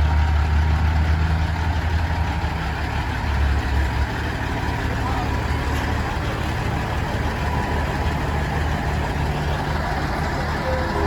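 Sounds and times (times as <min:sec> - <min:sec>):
diesel truck engine humming: 0:00.0 - 0:11.0
traffic noise: 0:00.0 - 0:11.0.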